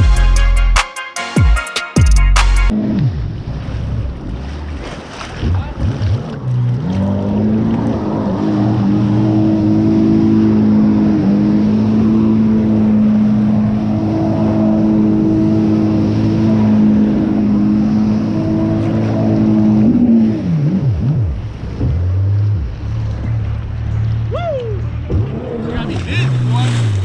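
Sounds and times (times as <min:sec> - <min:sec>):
engine at high speed: 0:06.4 - 0:27.0.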